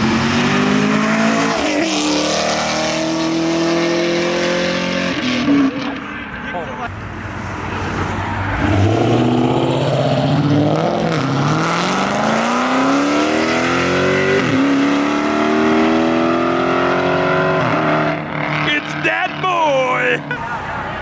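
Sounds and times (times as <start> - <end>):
car engine accelerating hard: 0.0 - 5.9, 7.9 - 18.6.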